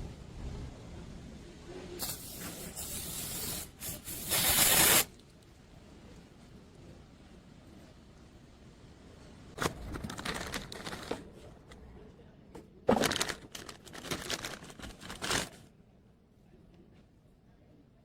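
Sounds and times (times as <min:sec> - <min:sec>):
crinkling handling noise: 0:09.6 - 0:15.7.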